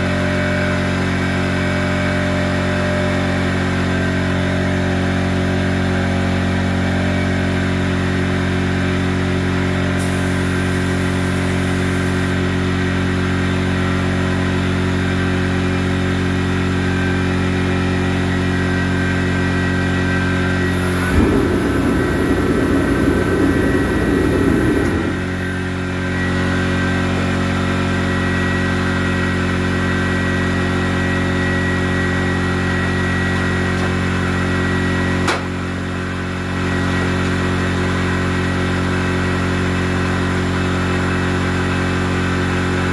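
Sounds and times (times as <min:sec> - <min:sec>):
steady mechanical hum: 0:16.6 - 0:35.8
hissing rumbling burst: 0:20.6 - 0:25.6.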